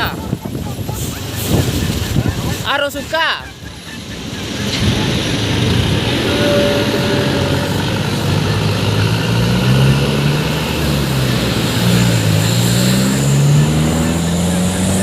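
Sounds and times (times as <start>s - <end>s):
truck engine running: 3.5s - 15.0s.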